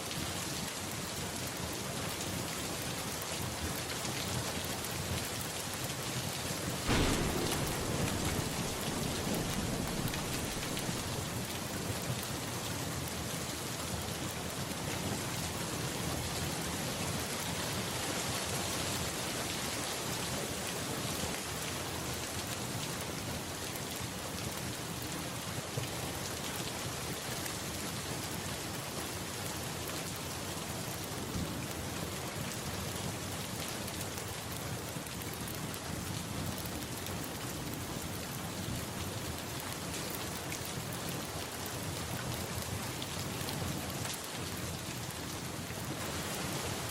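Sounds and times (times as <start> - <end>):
steady rain falling: 0.0 - 46.9
low rumble of thunder: 6.9 - 12.2.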